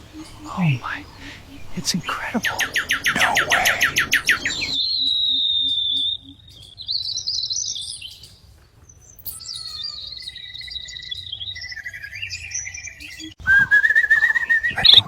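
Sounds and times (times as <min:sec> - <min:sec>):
small bird chirping and whistling: 0:00.1 - 0:08.3, 0:09.1 - 0:15.0.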